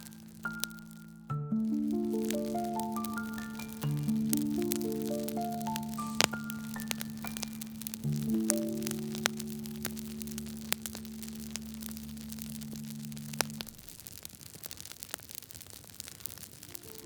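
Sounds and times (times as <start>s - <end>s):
low held musical chord: 0.0s - 13.6s
wood fire crackling: 0.0s - 17.0s.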